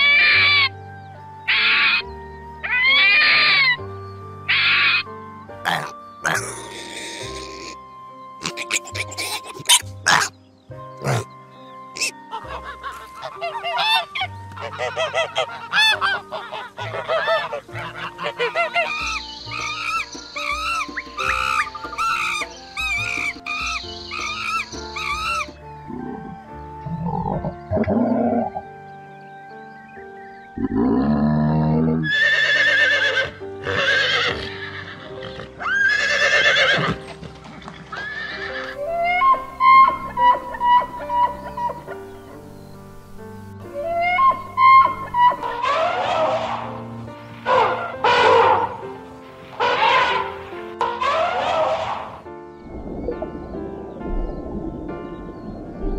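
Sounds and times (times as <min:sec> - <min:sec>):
horse neighing: 0:08.4 - 0:10.3, 0:30.7 - 0:37.0
goose honking: 0:12.0 - 0:19.0, 0:43.9 - 0:46.8, 0:47.5 - 0:48.8, 0:49.6 - 0:52.2.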